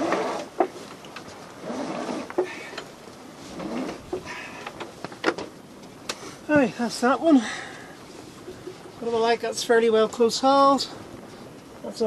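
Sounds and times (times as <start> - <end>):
rope hauled swishing: 0.0 - 0.5
water noise: 0.0 - 12.0
wind: 0.0 - 12.0.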